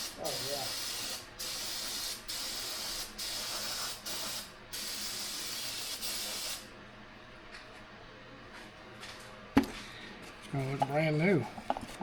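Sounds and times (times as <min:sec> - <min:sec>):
aerosol can spraying: 0:00.3 - 0:06.6.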